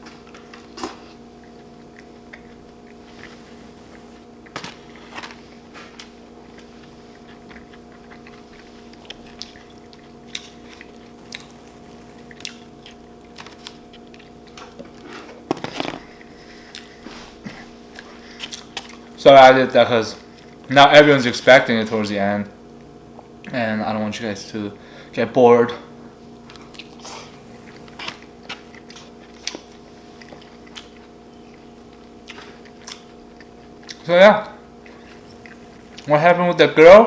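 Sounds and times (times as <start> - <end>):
chewing and mouth sounds: 0.0 - 19.2, 20.2 - 20.7, 26.4 - 36.2
steady low hum: 0.0 - 37.0.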